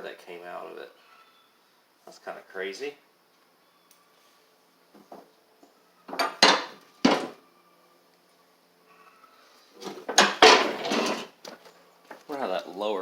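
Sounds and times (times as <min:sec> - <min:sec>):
metal parts and tools clanking: 0:06.1 - 0:07.4, 0:09.8 - 0:11.4.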